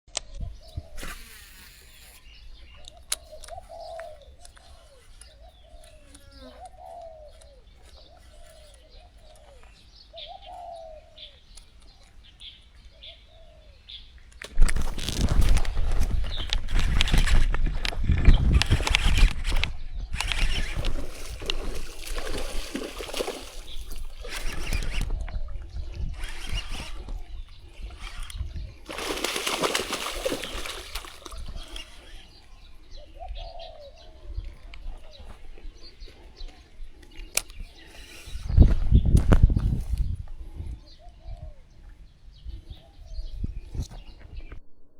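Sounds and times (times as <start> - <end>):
small birds chirping: 0.1 - 17.4, 18.1 - 44.6
doves cooing: 2.8 - 11.5, 20.2 - 38.4
fish splashing in water: 20.2 - 25.1, 28.8 - 32.3.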